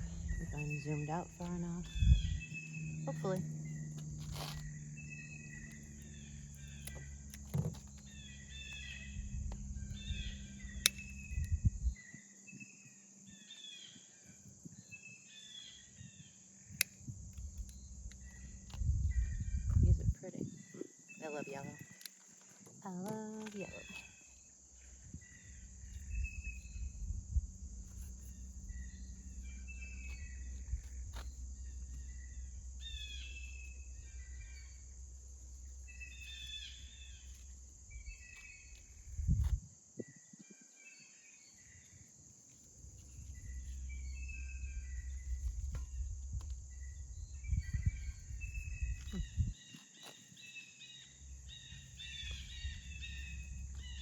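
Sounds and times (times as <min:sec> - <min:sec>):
low rumble: 0:00.0 - 0:12.0, 0:17.0 - 0:20.2, 0:24.8 - 0:39.6, 0:42.7 - 0:49.6, 0:51.2 - 0:54.0
high insect buzz: 0:00.0 - 0:40.4, 0:41.3 - 0:54.0
songbirds chirping and singing: 0:00.0 - 0:54.0
sharp clicks: 0:10.6 - 0:11.6.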